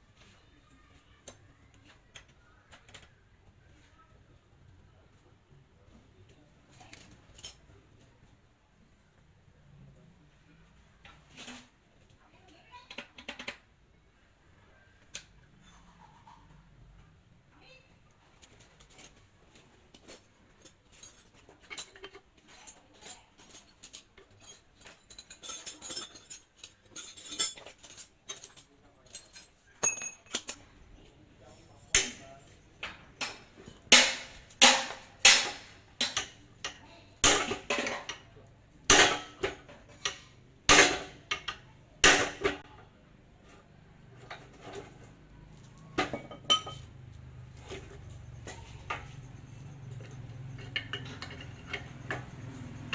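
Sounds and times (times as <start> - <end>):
metal tools clinking and tapping: 6.7 - 8.1, 18.4 - 52.9.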